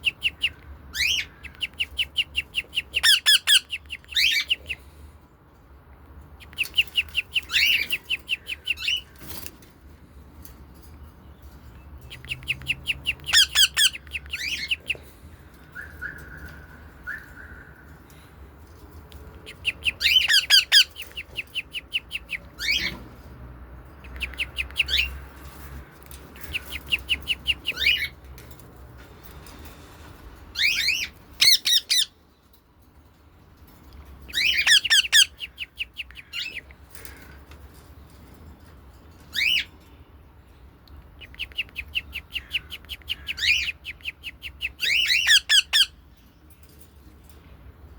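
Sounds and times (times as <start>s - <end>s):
birds squawking shrilly: 2.8s - 4.8s, 13.2s - 14.8s, 19.6s - 21.2s, 30.5s - 32.2s, 34.3s - 37.2s, 42.3s - 43.8s, 44.8s - 45.9s.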